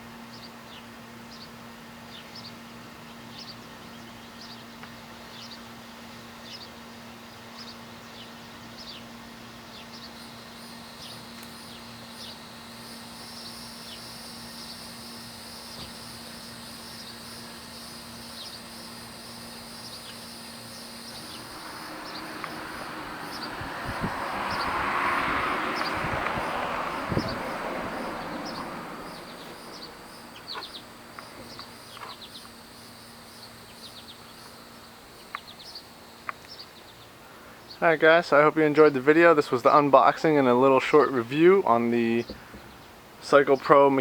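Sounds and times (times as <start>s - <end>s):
high insect drone: 0.3s - 44.0s
bird chirping: 9.7s - 37.1s
rush of noise: 21.1s - 31.6s.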